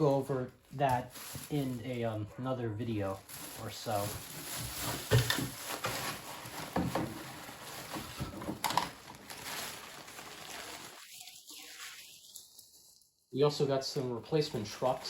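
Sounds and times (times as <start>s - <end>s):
packaging rustling: 0.7s - 2.0s, 3.2s - 11.9s.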